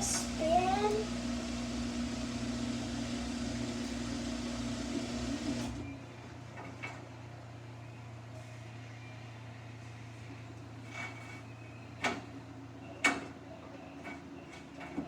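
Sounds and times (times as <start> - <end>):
washing machine spinning: 0.0 - 6.2.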